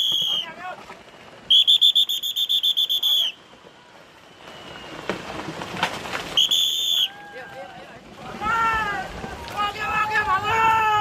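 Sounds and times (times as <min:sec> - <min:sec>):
shrill trilling whistle: 0:00.0 - 0:00.6, 0:01.5 - 0:03.4, 0:04.2 - 0:05.0, 0:06.4 - 0:07.2.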